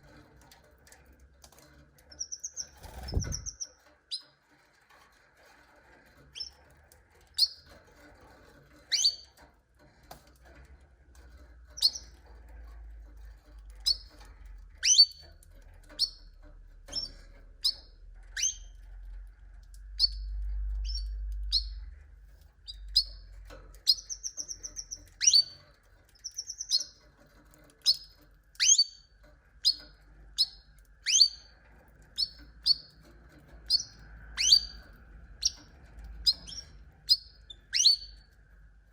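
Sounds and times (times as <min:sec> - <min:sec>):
canaries chirping: 0:00.0 - 0:04.8, 0:05.8 - 0:10.4, 0:11.1 - 0:38.4
faint low rumble: 0:02.6 - 0:03.7, 0:18.4 - 0:25.0.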